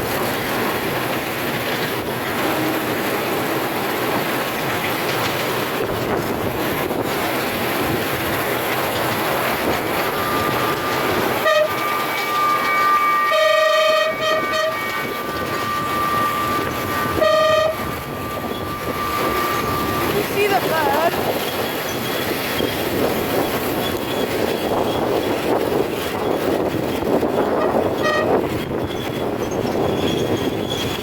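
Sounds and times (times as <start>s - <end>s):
miniature steam locomotive clattering: 0.0s - 31.0s
steam whistle toots: 9.6s - 21.3s, 27.4s - 28.6s.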